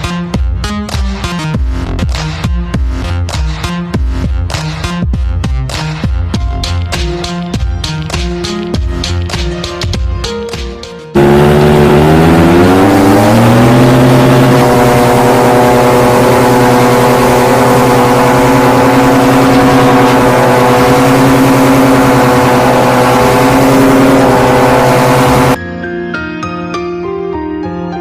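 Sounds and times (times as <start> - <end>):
paramotor engine and propeller: 11.2 - 25.6.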